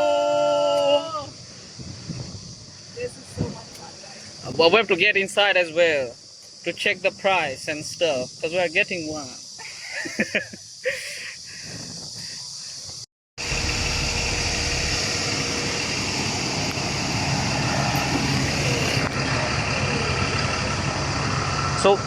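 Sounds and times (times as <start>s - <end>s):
vehicle engine running: 13.4s - 22.0s.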